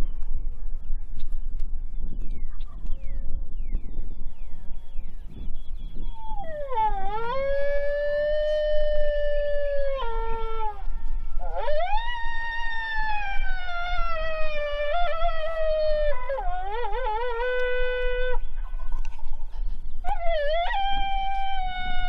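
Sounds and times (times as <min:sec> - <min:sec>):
coyote howls on a predator call: 0:06.0 - 0:18.8, 0:20.0 - 0:22.0.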